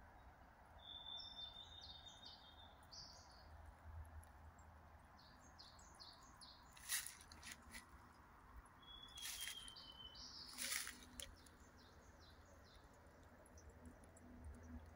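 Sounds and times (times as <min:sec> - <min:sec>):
bird chirping: 0:00.8 - 0:03.6, 0:08.8 - 0:14.9
rustling: 0:06.8 - 0:07.9, 0:09.2 - 0:09.7, 0:10.5 - 0:11.3.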